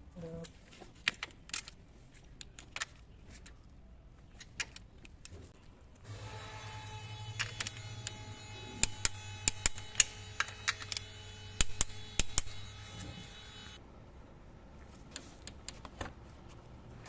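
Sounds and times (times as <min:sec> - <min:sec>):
steady hum: 0:06.0 - 0:14.5
hand tools clicking and tapping: 0:08.8 - 0:12.6.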